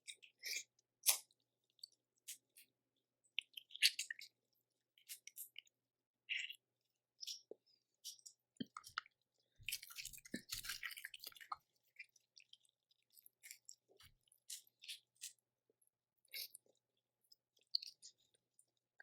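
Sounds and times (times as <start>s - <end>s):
wet chewing and squishing: 0.0s - 6.6s, 7.2s - 19.0s.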